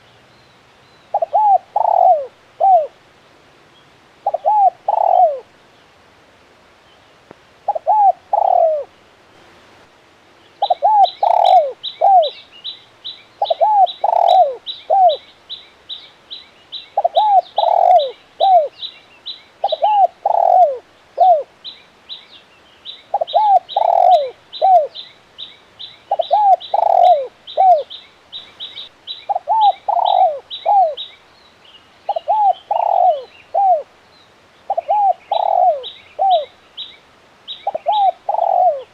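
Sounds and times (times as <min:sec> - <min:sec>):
dove cooing: 0:01.1 - 0:03.0, 0:04.2 - 0:05.5, 0:07.7 - 0:08.9, 0:10.6 - 0:12.4, 0:13.4 - 0:15.2, 0:17.0 - 0:18.8, 0:19.6 - 0:21.5, 0:23.1 - 0:25.0, 0:26.1 - 0:27.9, 0:29.3 - 0:31.0, 0:32.1 - 0:33.9, 0:34.7 - 0:36.6, 0:37.6 - 0:38.9.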